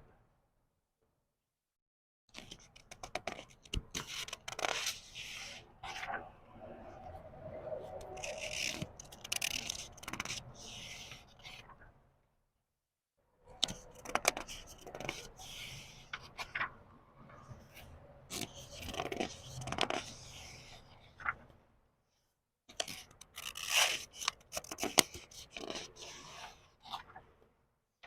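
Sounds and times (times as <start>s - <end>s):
book pages turning: 2.3s - 6.3s, 8.1s - 11.7s, 13.6s - 16.8s, 17.6s - 21.5s, 22.7s - 27.2s.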